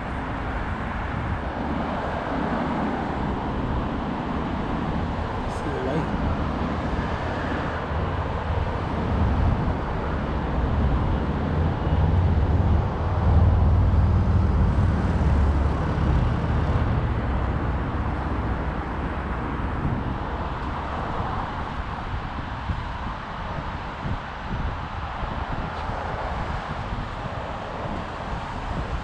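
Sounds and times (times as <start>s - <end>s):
light-rail train rumbling: 1.6s - 22.1s.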